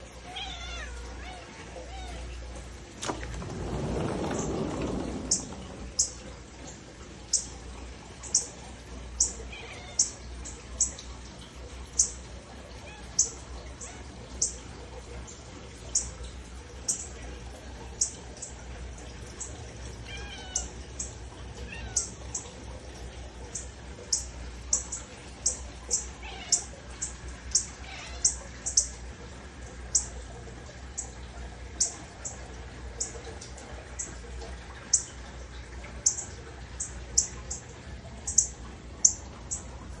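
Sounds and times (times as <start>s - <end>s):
cat meowing faintly: 0.3s - 2.4s, 20.0s - 20.8s, 26.2s - 26.7s, 27.8s - 28.4s.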